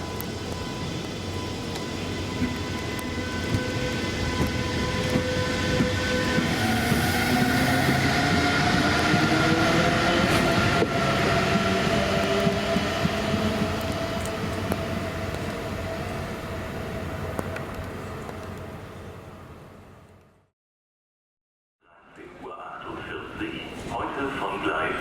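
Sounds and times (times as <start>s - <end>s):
train wheels rumbling and clicking: 0.0s - 18.9s
electric train whining: 0.0s - 19.9s.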